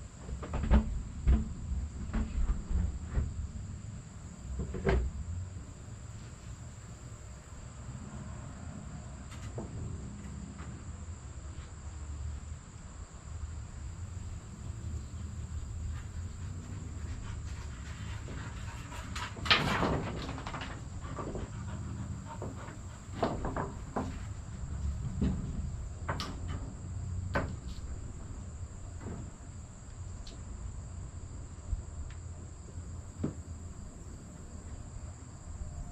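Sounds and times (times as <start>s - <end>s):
low steady rumble: 0.0s - 35.9s
knocks and clanks: 0.3s - 3.4s, 15.1s - 28.3s.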